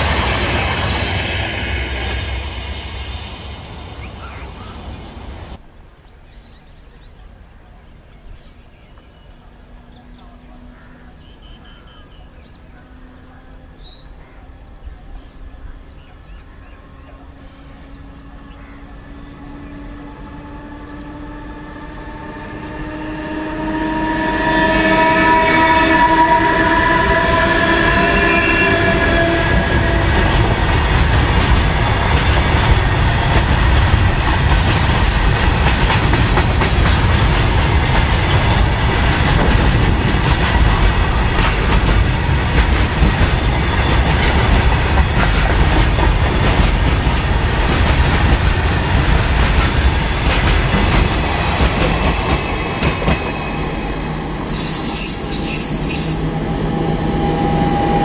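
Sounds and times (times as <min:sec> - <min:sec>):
freight train wheels rumbling: 0:00.0 - 0:05.6, 0:12.1 - 0:58.0
locomotive horn blast: 0:21.9 - 0:30.7.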